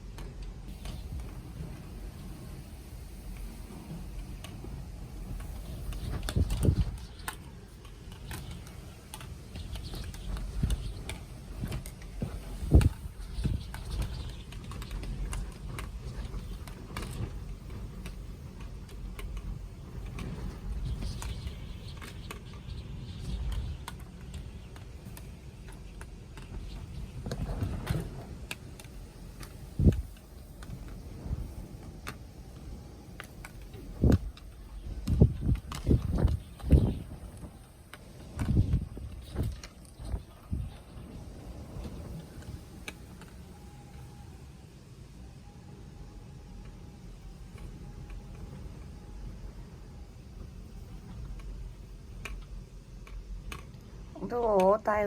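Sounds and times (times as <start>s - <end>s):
rain taps and clicks: 0.0s - 44.1s, 46.4s - 55.0s
gusty wind rumbles: 0.0s - 55.0s.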